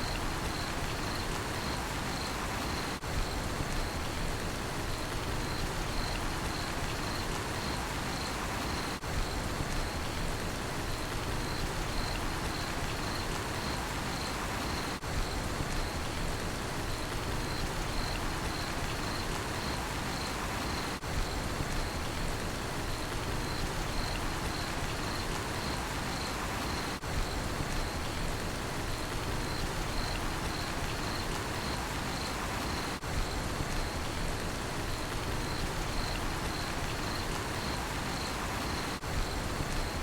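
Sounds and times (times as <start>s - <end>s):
cricket chirping: 0.0s - 4.1s, 4.9s - 9.0s, 11.3s - 15.0s, 17.3s - 22.1s, 23.3s - 28.2s, 29.3s - 33.0s, 34.9s - 40.0s
steady rainfall: 0.0s - 40.0s.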